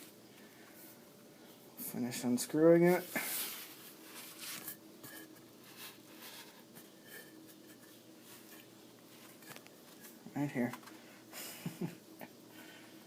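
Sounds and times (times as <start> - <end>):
scrape: 3.0 - 10.2.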